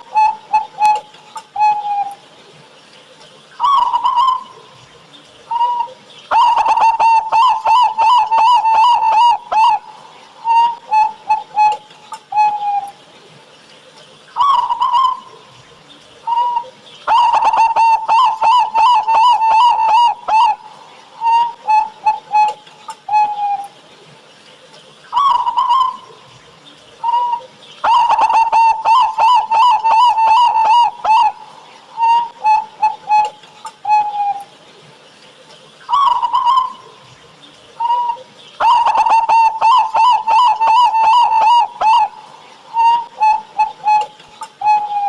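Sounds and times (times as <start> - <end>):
dove cooing song: 0.0 - 45.0.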